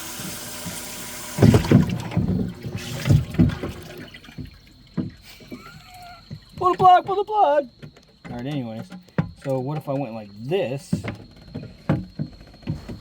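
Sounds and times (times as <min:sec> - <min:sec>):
aerator pump spraying water: 0:00.0 - 0:04.4
water splashing and sloshing: 0:00.0 - 0:13.0.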